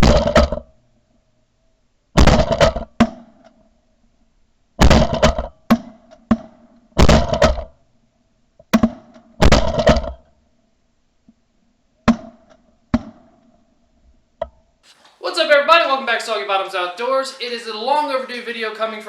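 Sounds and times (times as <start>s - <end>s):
faint steady hum: 0.7s - 2.3s.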